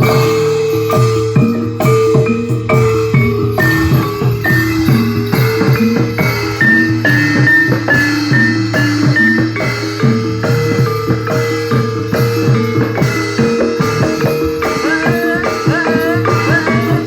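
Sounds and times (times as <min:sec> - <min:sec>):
drums: 0:00.0 - 0:17.0
metal-keyed percussion: 0:00.0 - 0:17.0
high wavering melody: 0:00.8 - 0:10.5.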